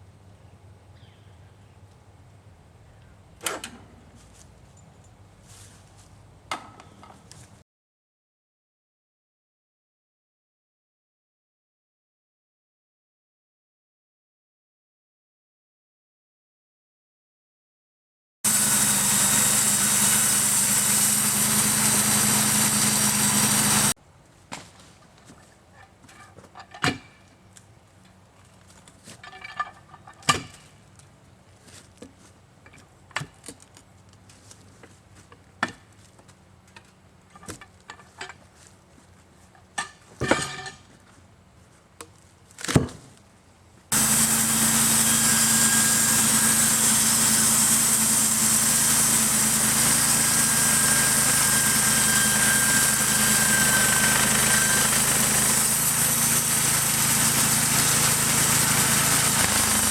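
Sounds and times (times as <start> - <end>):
sawmill engine running: 18.5 - 24.0, 43.9 - 59.9.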